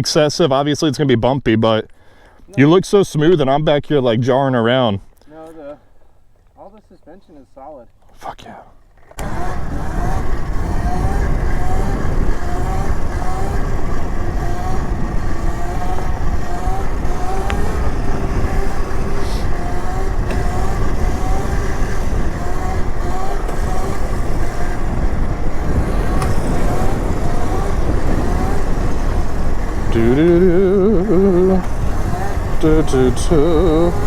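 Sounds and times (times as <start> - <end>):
dirt bike trail rumble: 8.8 - 34.0
short rising tone: 9.2 - 34.0
wind rush: 9.2 - 34.0.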